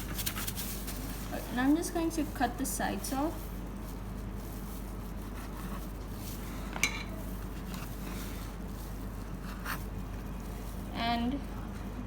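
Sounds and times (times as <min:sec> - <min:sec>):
knife clinking against a dish: 0:06.8 - 0:07.1.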